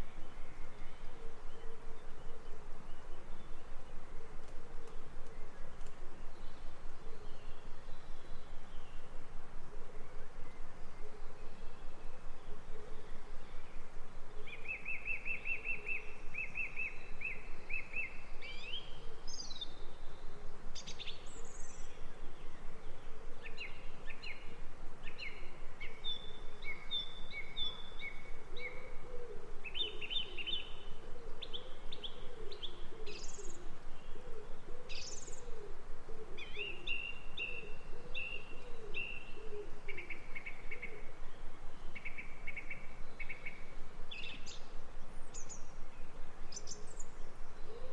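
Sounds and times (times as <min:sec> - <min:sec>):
background hiss: 0:00.0 - 0:47.9
songbirds trilling and chirping: 0:00.0 - 0:47.9
low wavering bird calls: 0:09.7 - 0:47.9.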